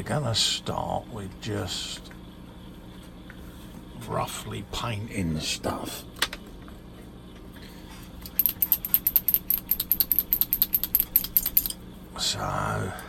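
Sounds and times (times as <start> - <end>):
paint bottle shaking rattle: 8.2 - 11.8.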